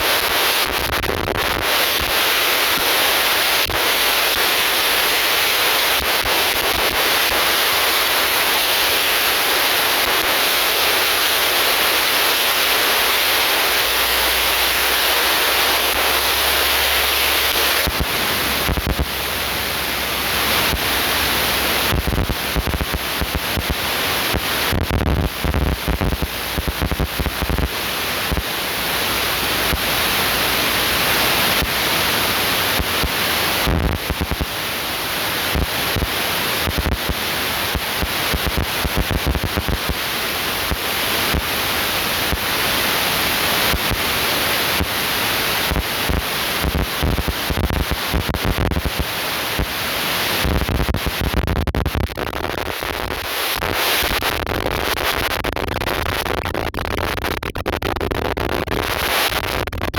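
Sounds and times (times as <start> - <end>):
low rumbling and buffeting: 13.8 - 26.6.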